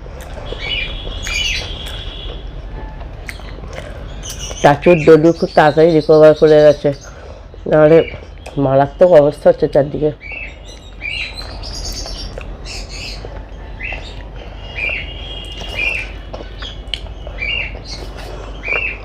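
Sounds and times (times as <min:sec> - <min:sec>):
bird chirping: 0:00.2 - 0:19.0
soft eating clicks: 0:03.0 - 0:04.6, 0:10.7 - 0:19.0.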